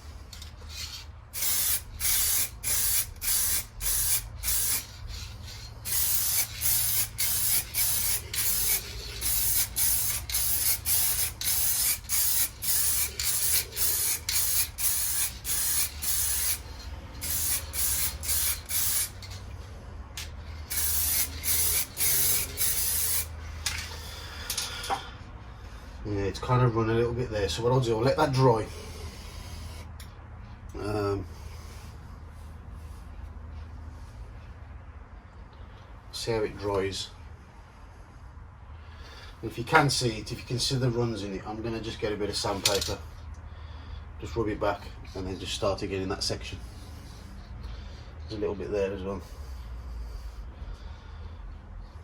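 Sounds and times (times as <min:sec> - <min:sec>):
steady low hum: 0:00.0 - 0:52.0
spray hissing bursts: 0:01.3 - 0:19.2, 0:20.6 - 0:23.4.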